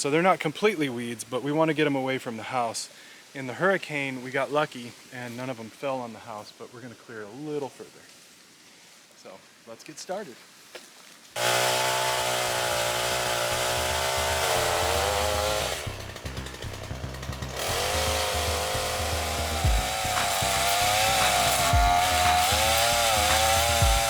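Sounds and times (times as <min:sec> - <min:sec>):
chainsaw cutting wood: 0:11.4 - 0:24.0.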